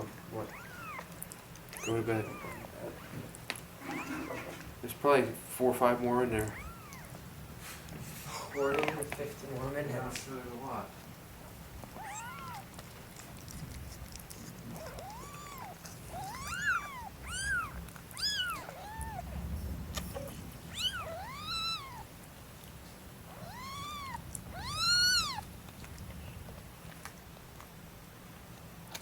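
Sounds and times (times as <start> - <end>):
cat mewing: 0.4 - 3.0, 3.8 - 4.6, 6.4 - 7.2, 11.8 - 12.8, 14.6 - 19.4, 20.1 - 22.1, 23.3 - 25.5.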